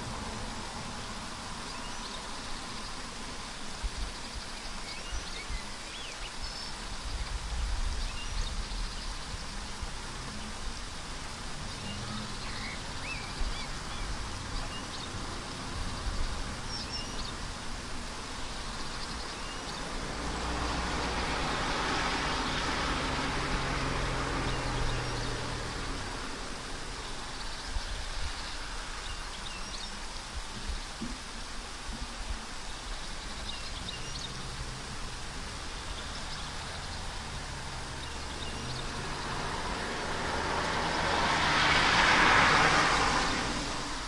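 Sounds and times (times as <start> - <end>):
car passing on road: 0.0 - 3.7, 9.3 - 30.5, 33.8 - 44.0
wet background hiss: 0.0 - 44.0.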